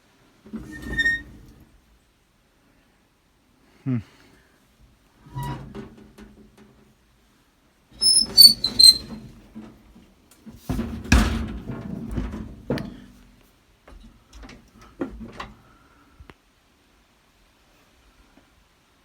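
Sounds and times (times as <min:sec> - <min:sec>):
high-pitched squeaks: 0:08.0 - 0:09.1.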